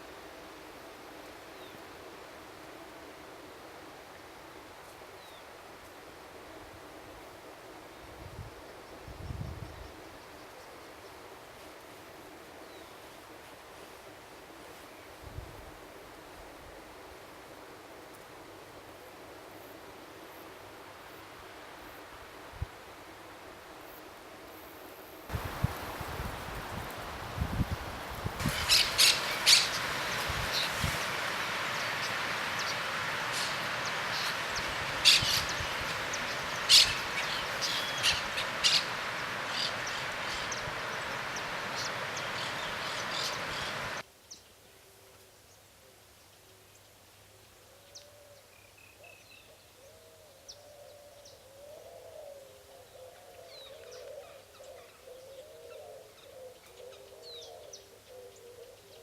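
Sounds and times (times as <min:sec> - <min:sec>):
bird chirps: 0:28.4 - 0:44.0
loud steady rushing noise: 0:28.4 - 0:44.0.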